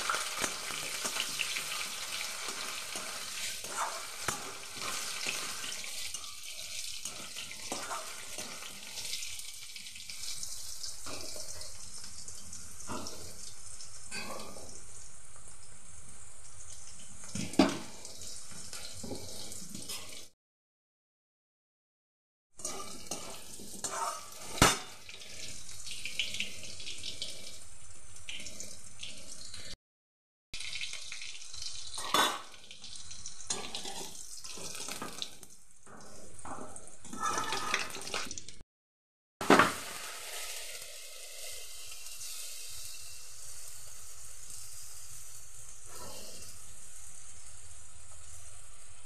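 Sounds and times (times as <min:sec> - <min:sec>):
potatoes sizzling in hot oil: 0:00.0 - 0:20.3, 0:22.6 - 0:29.8, 0:30.6 - 0:38.6, 0:39.4 - 0:49.0
spatula scraping and knocking pan: 0:22.6 - 0:25.0.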